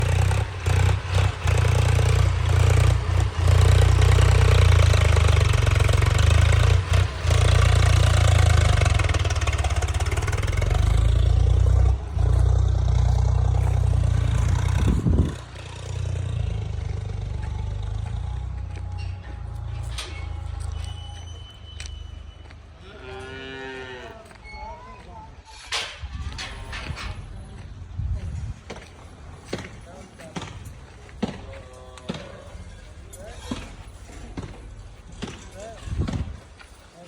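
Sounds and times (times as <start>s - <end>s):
vehicle engine low rumble: 0.0s - 22.8s, 26.2s - 36.7s.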